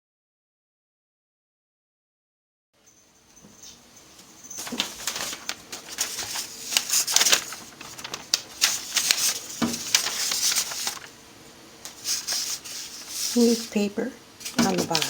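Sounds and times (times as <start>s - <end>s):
newspaper rustling: 4.3s - 15.0s.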